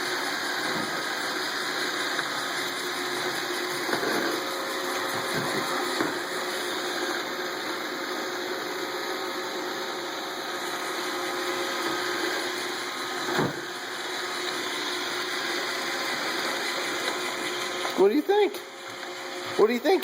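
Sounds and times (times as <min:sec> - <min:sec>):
robot vacuum whirring: 0:00.0 - 0:20.0
thump: 0:13.3 - 0:13.6.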